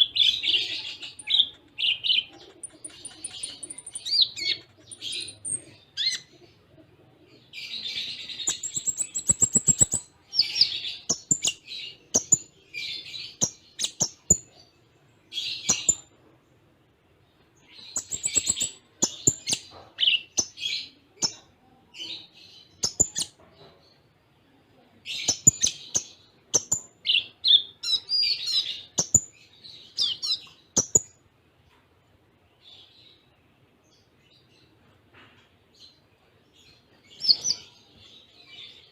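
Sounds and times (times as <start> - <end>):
sunbird singing high chirps and trills: 0.0 - 6.6, 7.3 - 16.6, 17.2 - 34.8, 35.7 - 38.9.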